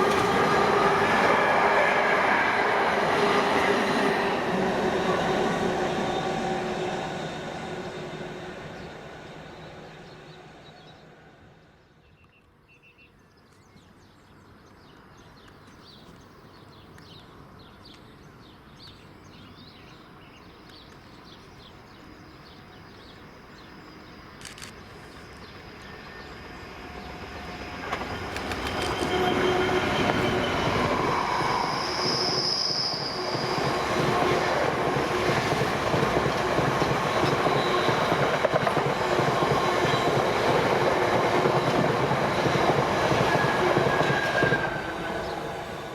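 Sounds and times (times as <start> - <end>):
train wheels rushing on rail: 0.0 - 11.4, 23.6 - 45.9.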